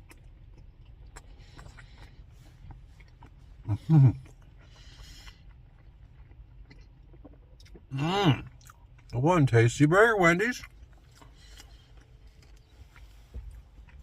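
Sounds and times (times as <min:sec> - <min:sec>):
soft rustling: 0:12.2 - 0:14.0.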